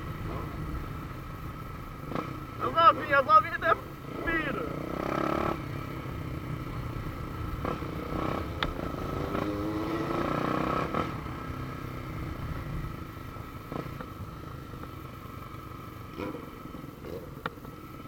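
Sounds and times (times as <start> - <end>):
motorcycle engine accelerating: 4.0 - 17.7.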